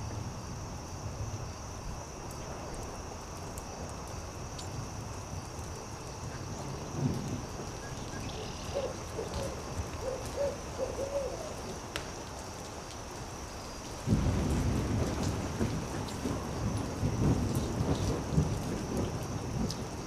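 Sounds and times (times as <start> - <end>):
low thunder rumble: 0.0 - 11.9, 14.0 - 20.0
campfire crackling: 0.8 - 20.0
owl hooting: 8.2 - 11.6.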